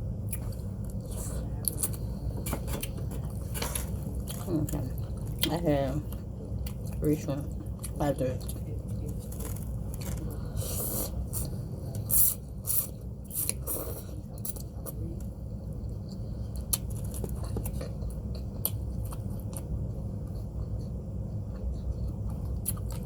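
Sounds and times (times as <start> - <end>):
steady low hum: 0.0 - 23.0
chewing close to microphone: 15.9 - 23.0.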